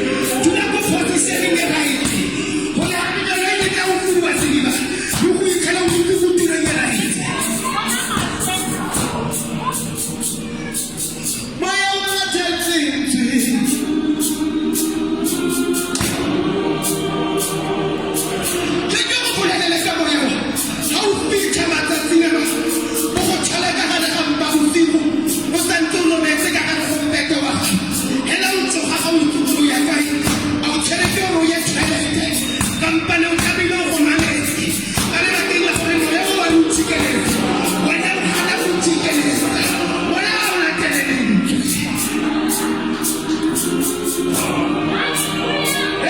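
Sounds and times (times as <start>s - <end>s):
gospel choir singing: 0.0s - 46.0s
drum beat: 0.1s - 10.3s, 15.2s - 17.0s, 20.8s - 24.7s, 28.8s - 41.0s.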